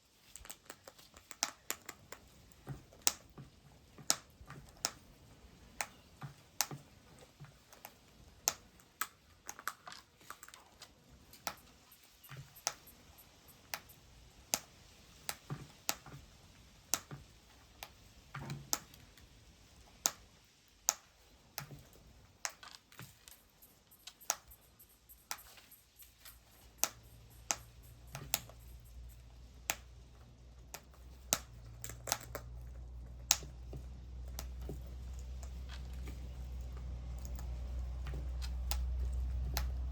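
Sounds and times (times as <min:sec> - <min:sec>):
sharp clicks and taps: 0:11.2 - 0:16.2, 0:20.9 - 0:39.9.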